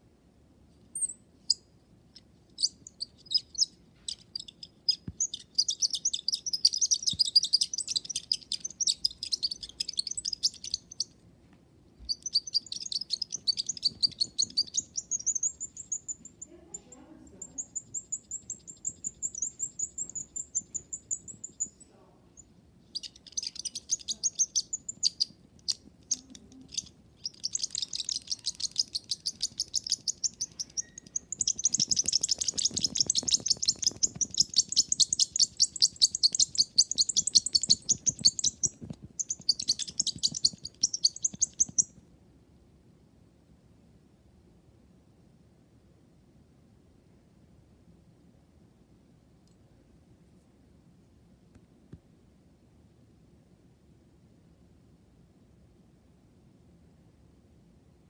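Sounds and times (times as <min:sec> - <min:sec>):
small bird chirping and trilling: 0:01.0 - 0:11.2, 0:12.0 - 0:42.0.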